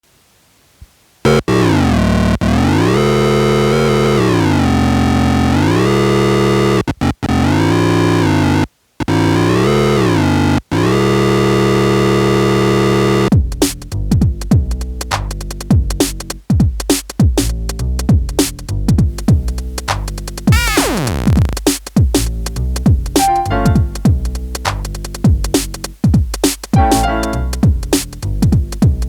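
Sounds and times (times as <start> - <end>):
drum machine beats: 13.3 - 29.0.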